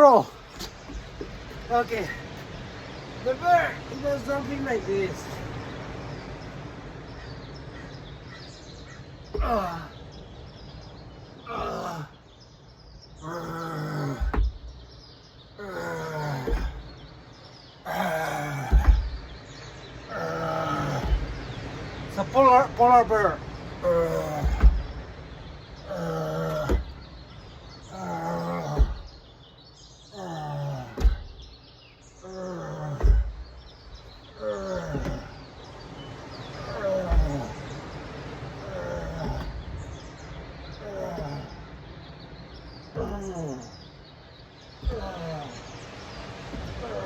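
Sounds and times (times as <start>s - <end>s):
person imitating bear roar: 11.5s - 12.1s, 13.2s - 14.4s, 15.6s - 16.8s, 17.8s - 19.0s, 25.9s - 26.9s, 27.9s - 29.1s, 30.1s - 31.2s, 32.2s - 33.3s, 34.4s - 35.4s, 44.8s - 45.6s
heavy thump: 14.1s - 14.8s, 16.4s - 17.0s, 18.0s - 19.4s, 20.4s - 21.6s, 23.9s - 25.1s, 26.4s - 27.0s, 28.6s - 29.2s, 30.9s - 31.5s, 32.9s - 34.2s, 34.8s - 35.4s, 36.7s - 37.6s, 44.8s - 45.5s, 46.4s - 47.0s
low thump: 14.2s - 14.8s, 18.6s - 19.4s, 24.2s - 25.1s, 30.9s - 31.4s, 33.0s - 33.6s.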